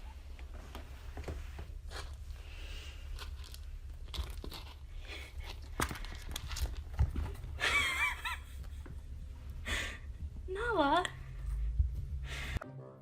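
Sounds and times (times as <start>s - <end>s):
irregular crunching: 1.8s - 7.6s
steady low hum: 7.2s - 12.6s.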